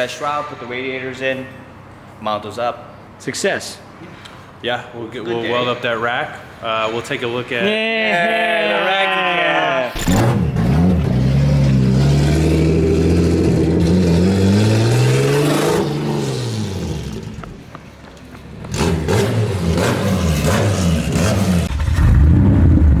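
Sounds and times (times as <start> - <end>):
car engine revving: 9.9 - 17.6, 18.5 - 23.0.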